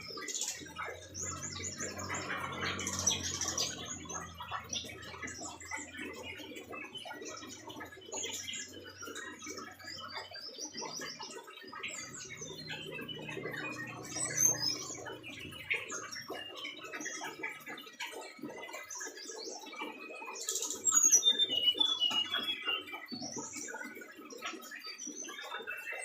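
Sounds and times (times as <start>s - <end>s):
bird chirps and whistles: 20.5s - 23.1s.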